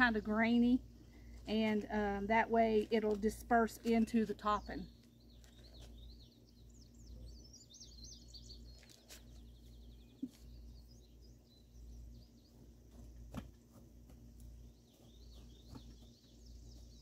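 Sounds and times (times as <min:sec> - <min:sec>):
songbirds whistling and trilling: 0:03.8 - 0:13.2, 0:14.6 - 0:17.0.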